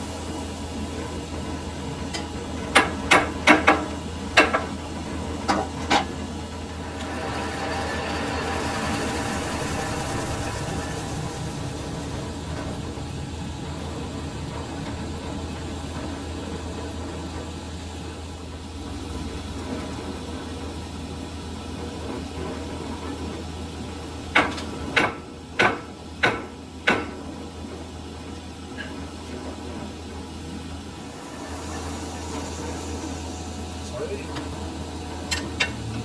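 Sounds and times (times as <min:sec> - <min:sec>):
lathe humming: 0:00.0 - 0:22.9, 0:30.2 - 0:36.0.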